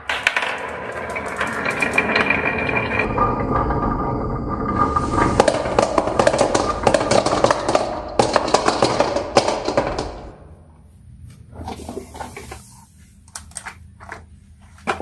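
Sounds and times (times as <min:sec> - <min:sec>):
marbles clattering down wooden run: 0:00.0 - 0:10.3.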